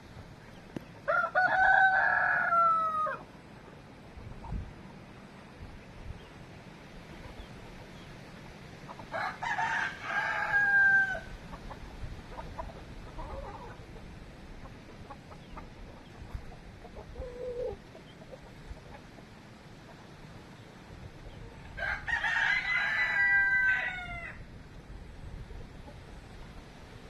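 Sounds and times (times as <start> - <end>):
rooster crowing: 1.0 - 3.2, 9.1 - 11.3, 21.8 - 24.4
chicken clucks: 3.6 - 4.7, 7.1 - 8.1, 8.8 - 9.2, 11.4 - 20.4.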